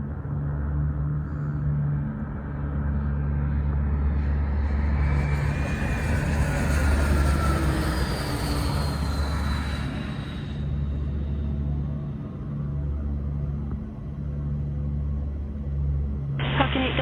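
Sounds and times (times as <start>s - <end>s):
jet engine low rumble: 0.0s - 17.0s
jet engine high whine: 2.4s - 13.6s.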